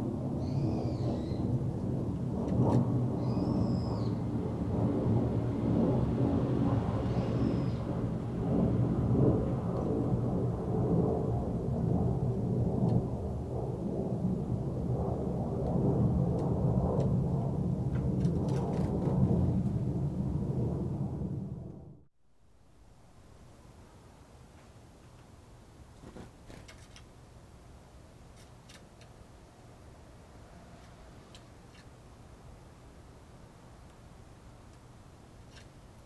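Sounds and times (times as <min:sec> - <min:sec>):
wind rumbling on microphone: 0:00.0 - 0:22.1.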